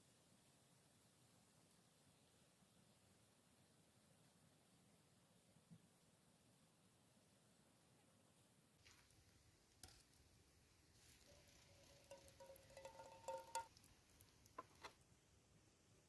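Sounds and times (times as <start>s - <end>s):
faint steady tone: 0.0s - 16.0s
faint clicks and taps: 11.2s - 15.0s.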